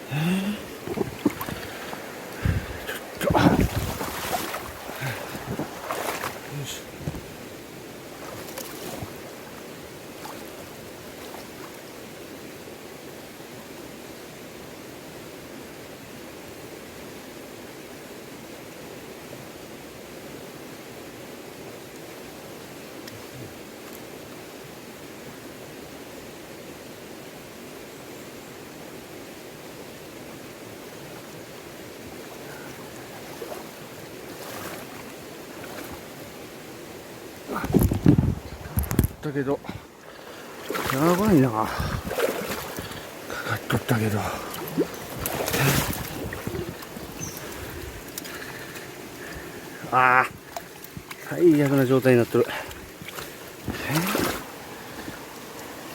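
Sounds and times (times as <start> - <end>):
river rushing: 0.0 - 18.4, 28.7 - 55.9
faint rustle: 0.1 - 7.5, 37.4 - 55.9.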